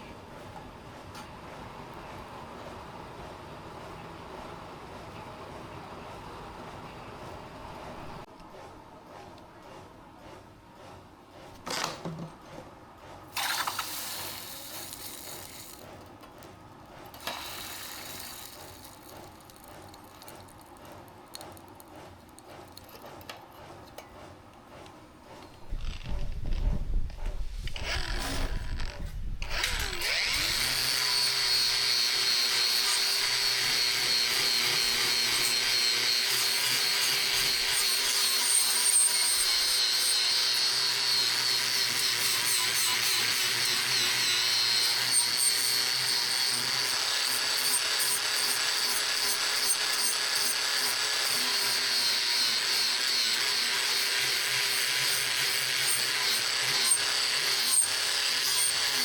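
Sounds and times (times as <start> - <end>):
power tool whining on steel: 13.4 - 15.9, 17.2 - 20.6, 27.7 - 59.0.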